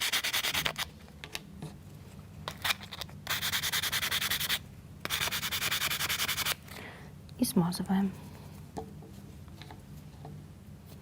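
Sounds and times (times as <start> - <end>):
sandpaper rubbing wood: 3.3 - 6.6.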